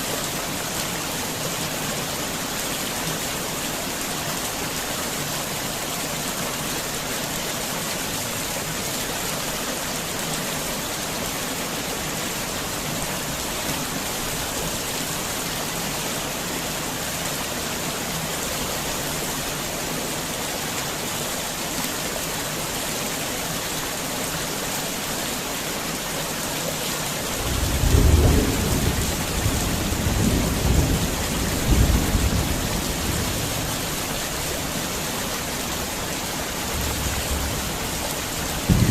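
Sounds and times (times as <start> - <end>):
heavy rain falling: 0.0 - 38.9
thunder rumbling: 27.4 - 33.7, 36.8 - 38.9.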